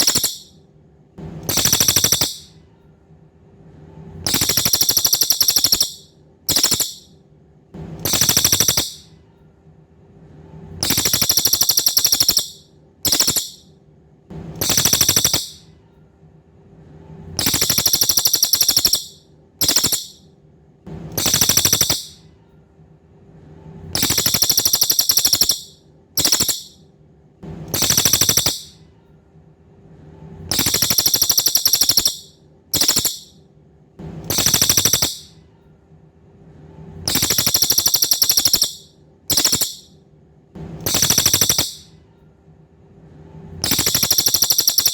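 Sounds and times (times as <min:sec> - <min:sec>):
songbird buzzing trills: 0:00.0 - 0:00.5, 0:01.5 - 0:02.5, 0:04.3 - 0:07.1, 0:08.1 - 0:09.0, 0:10.8 - 0:13.6, 0:14.6 - 0:15.6, 0:17.4 - 0:20.2, 0:21.2 - 0:22.2, 0:24.0 - 0:26.8, 0:27.7 - 0:28.7, 0:30.5 - 0:33.3, 0:34.3 - 0:35.3, 0:37.1 - 0:39.9, 0:40.9 - 0:41.8, 0:43.6 - 0:44.9
faint steady hum: 0:00.0 - 0:44.9.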